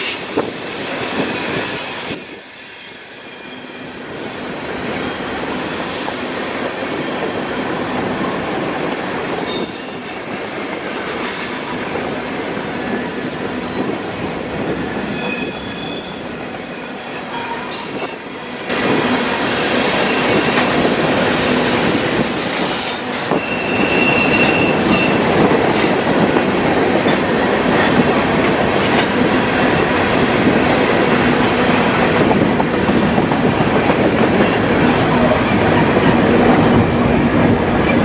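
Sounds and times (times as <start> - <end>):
freight train wheels rumbling: 0.0 - 38.0
wheel squeal: 22.2 - 25.2.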